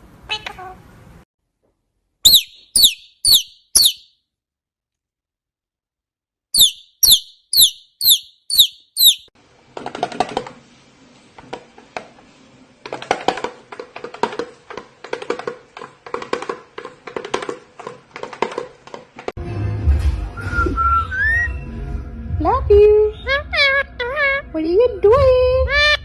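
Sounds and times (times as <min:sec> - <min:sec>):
parrot chirping: 0:02.2 - 0:04.2, 0:06.6 - 0:09.3.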